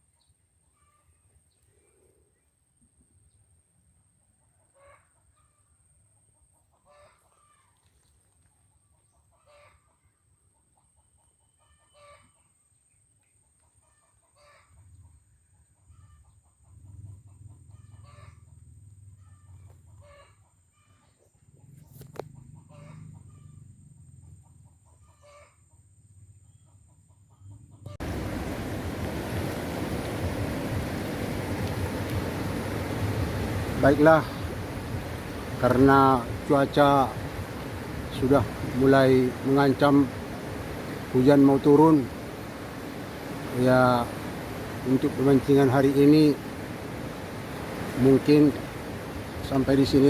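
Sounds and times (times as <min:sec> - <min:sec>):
chicken calling faintly: 0:04.4 - 0:05.7, 0:06.6 - 0:10.2, 0:11.0 - 0:12.6, 0:13.5 - 0:18.6, 0:19.2 - 0:23.7, 0:24.5 - 0:25.7.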